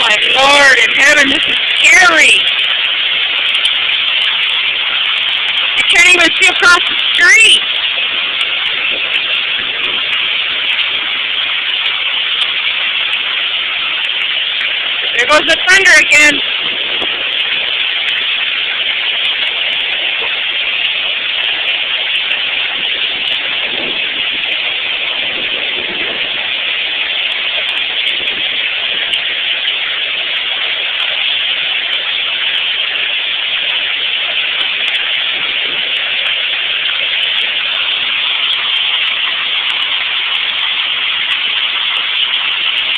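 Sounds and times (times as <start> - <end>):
heavy hail clattering: 0.0 - 13.2.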